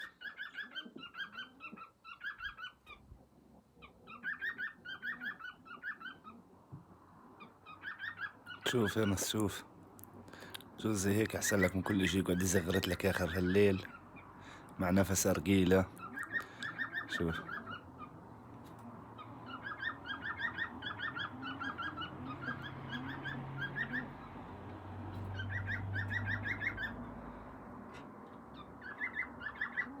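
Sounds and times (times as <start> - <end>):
cockatiel chirping: 0.0 - 3.1, 3.8 - 6.4, 7.4 - 8.8, 16.0 - 18.2, 19.2 - 24.2, 25.2 - 27.0, 28.5 - 30.0.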